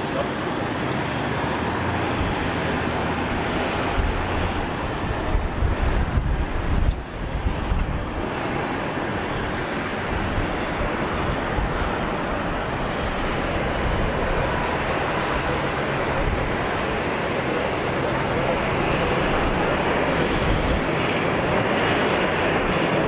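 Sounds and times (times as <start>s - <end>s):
jet engines rushing: 0.0s - 23.0s.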